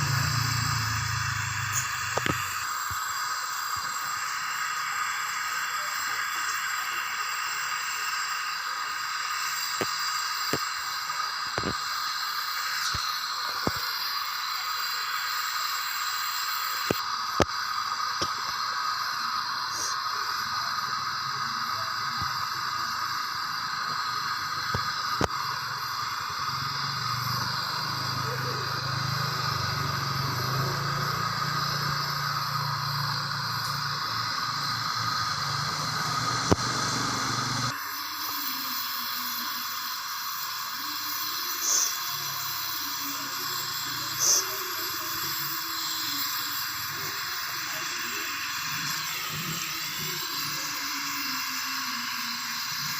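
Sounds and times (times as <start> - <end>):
welding hiss and crackle: 0.0 - 52.9.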